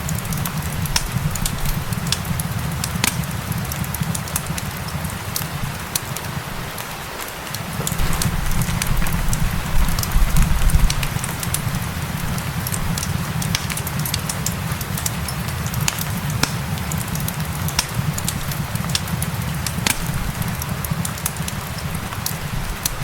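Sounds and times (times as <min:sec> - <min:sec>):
fireplace crackling and popping: 0:00.0 - 0:23.0
rain: 0:00.0 - 0:23.0
low rumble: 0:08.0 - 0:13.4.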